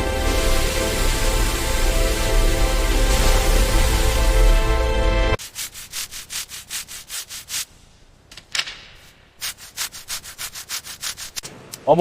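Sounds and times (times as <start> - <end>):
hand sanding strokes: 5.4 - 7.8, 9.4 - 11.5.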